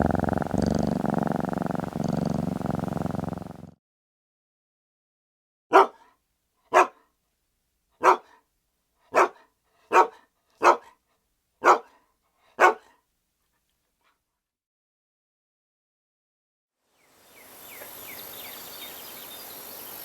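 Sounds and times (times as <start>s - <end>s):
dog barking: 5.7s - 7.1s, 8.0s - 8.5s, 9.1s - 11.0s, 11.6s - 13.0s.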